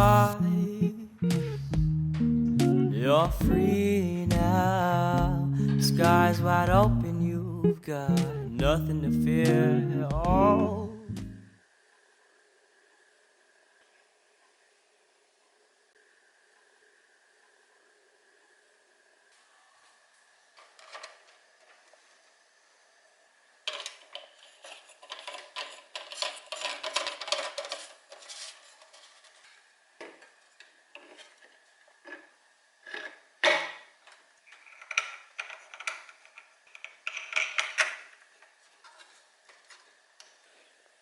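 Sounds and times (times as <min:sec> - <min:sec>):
plastic parts clattering: 0:20.6 - 0:22.0, 0:23.6 - 0:40.4.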